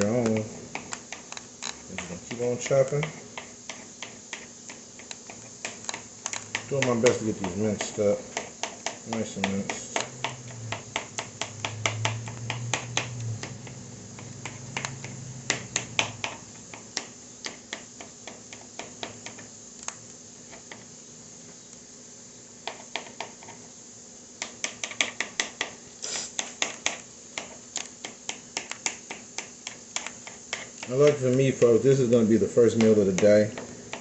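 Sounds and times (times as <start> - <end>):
knife chopping on cutting board: 1.9 - 19.4.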